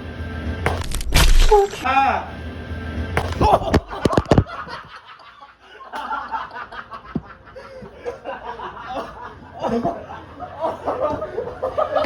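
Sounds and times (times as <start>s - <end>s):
people chuckling: 3.4s - 12.0s.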